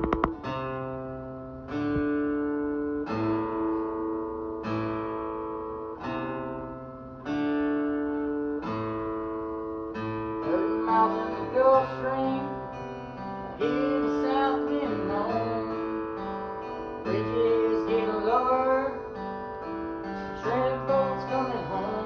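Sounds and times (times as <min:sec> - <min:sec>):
acoustic guitar chords strummed: 0:00.0 - 0:22.0
person singing: 0:10.4 - 0:12.8, 0:13.4 - 0:16.0, 0:17.0 - 0:19.2, 0:20.0 - 0:22.0.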